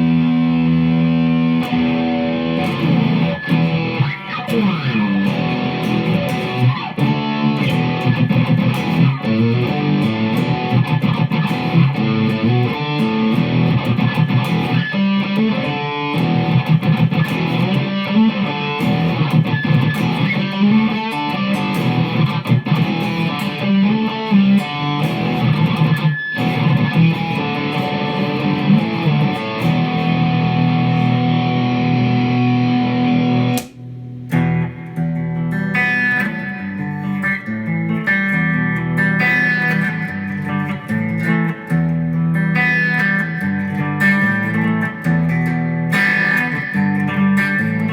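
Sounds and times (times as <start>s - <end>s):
electric guitar solo: 0.0s - 47.9s.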